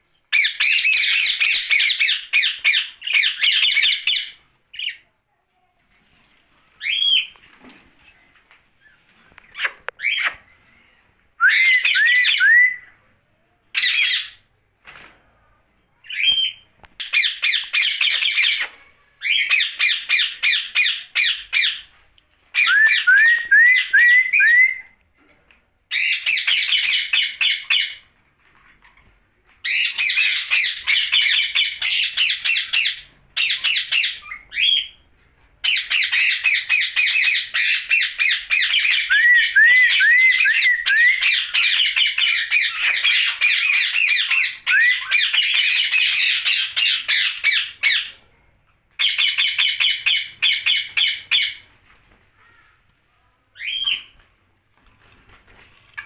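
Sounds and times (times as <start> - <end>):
parakeet squawking: 41.2 - 48.1.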